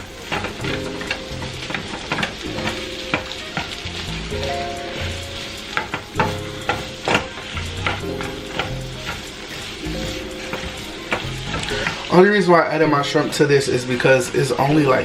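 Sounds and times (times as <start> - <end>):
food sizzling in a skillet: 0.0 - 15.0
utensil clicking against pan: 0.2 - 12.1.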